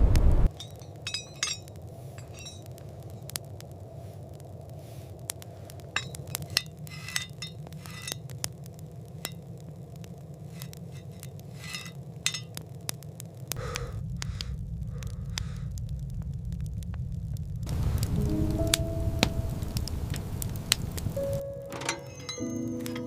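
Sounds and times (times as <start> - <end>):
steady low rumble: 0.0 - 21.5
dishes and utensils clinking: 0.5 - 2.6, 11.0 - 12.5, 21.7 - 23.0.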